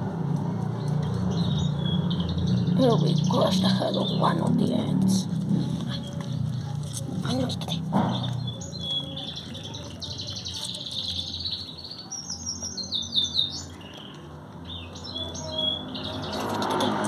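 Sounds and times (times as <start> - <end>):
small birds chirping: 0.3 - 17.0.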